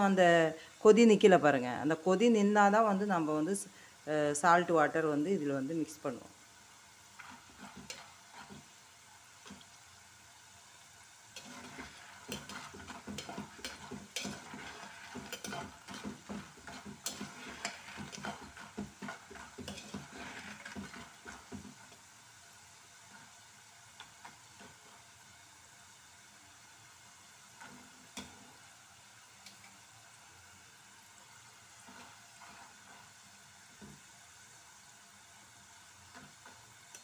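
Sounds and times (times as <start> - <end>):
chips sizzling in bubbling oil: 0.0 - 37.0
metal spoon scraping a pot: 7.2 - 8.7, 11.3 - 21.7, 31.8 - 33.1.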